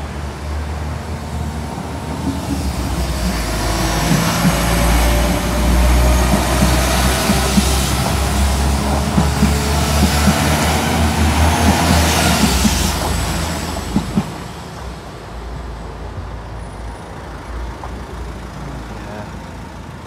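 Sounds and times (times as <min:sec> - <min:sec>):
diesel train engine drone: 0:00.0 - 0:20.0
wheels clicking over rail joints: 0:00.8 - 0:14.9.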